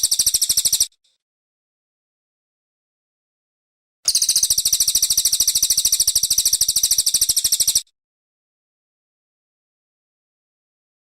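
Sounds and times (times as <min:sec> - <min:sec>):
bird singing high fast trill: 0:00.0 - 0:00.9, 0:04.1 - 0:07.9.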